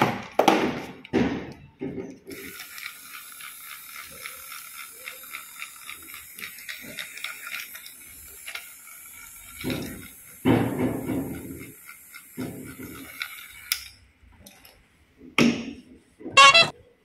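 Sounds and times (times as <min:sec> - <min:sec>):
toy train motor gear rattle: 0:02.1 - 0:14.8, 0:16.4 - 0:16.7.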